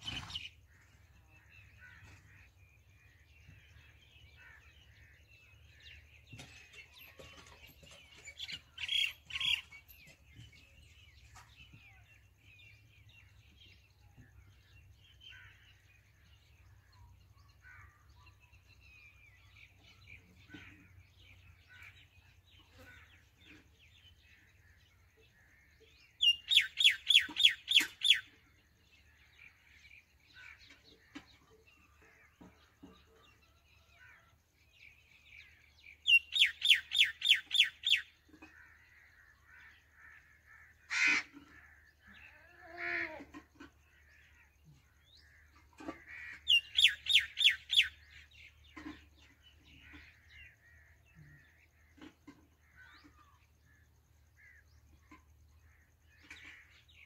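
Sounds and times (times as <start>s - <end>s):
faint bird chirps: 0.0s - 57.0s.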